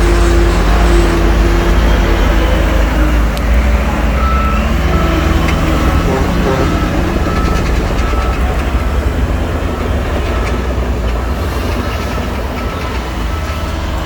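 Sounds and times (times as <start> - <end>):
bulldozer diesel engine rumbling: 0.0 - 14.0
steel tracks clanking: 0.0 - 14.0
faint reversing beeps: 1.7 - 14.0.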